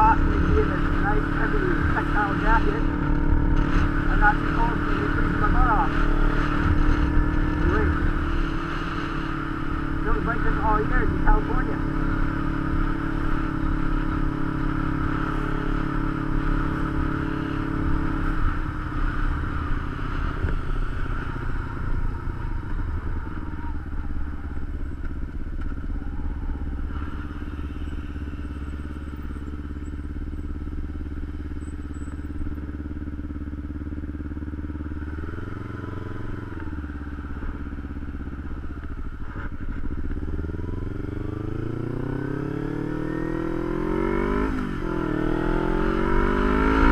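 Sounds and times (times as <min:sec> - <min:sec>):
motorcycle engine: 0:00.0 - 0:46.9.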